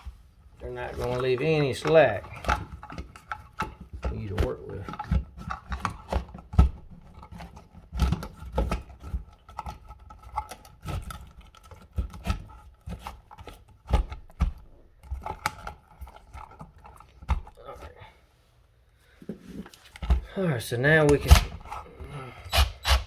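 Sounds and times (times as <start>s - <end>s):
electrical wires being handled: 0.0s - 17.9s, 19.2s - 23.0s
hand tools clicking and scraping: 0.6s - 13.8s, 19.4s - 23.0s.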